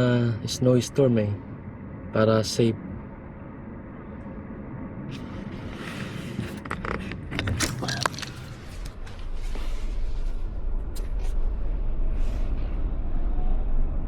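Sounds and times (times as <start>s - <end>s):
road and engine rumble: 0.0s - 14.0s
clicks and rattles: 6.5s - 9.0s.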